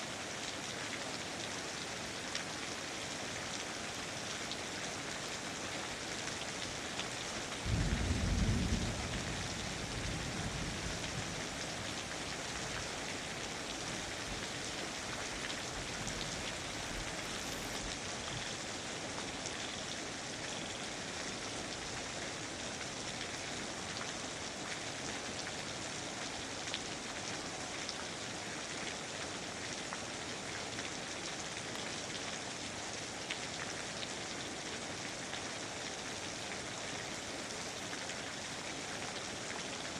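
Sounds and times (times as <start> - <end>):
steady rainfall: 0.0 - 39.9
low rumble of thunder: 7.6 - 13.4.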